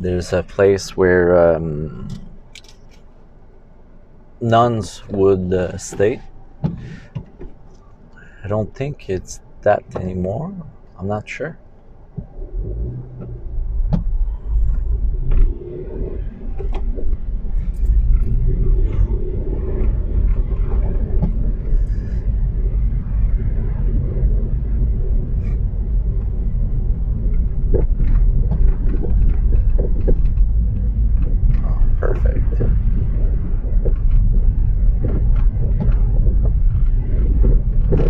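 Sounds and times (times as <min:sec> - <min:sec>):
car engine rumble: 0:00.0 - 0:38.0
tyres on snowy road: 0:00.0 - 0:38.0
light clicks and knocks: 0:09.8 - 0:10.4.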